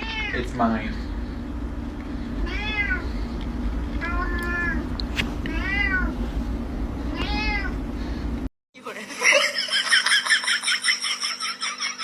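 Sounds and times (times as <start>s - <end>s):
cat meowing: 2.4s - 3.0s, 5.5s - 6.1s, 7.2s - 7.8s.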